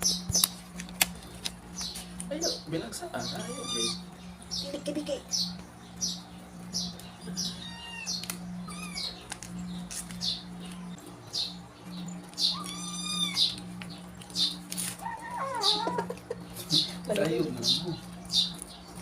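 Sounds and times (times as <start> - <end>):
steady low hum: 0.0 - 19.0
cat meowing: 3.3 - 4.0, 7.5 - 9.2, 12.5 - 13.6.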